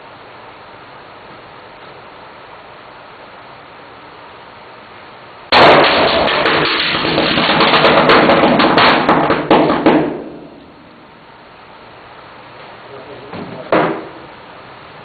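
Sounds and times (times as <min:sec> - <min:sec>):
crackling popping burn: 0:05.5 - 0:09.6
chemicals igniting burst: 0:05.5 - 0:10.6.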